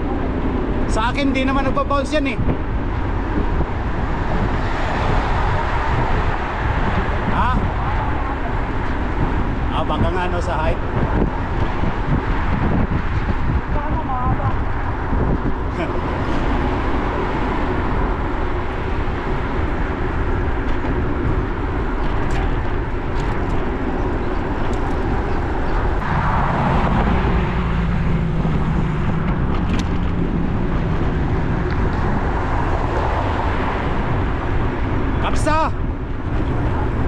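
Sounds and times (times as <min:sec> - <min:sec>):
road traffic noise: 0:00.0 - 0:37.0
vehicle passing close: 0:02.6 - 0:37.0.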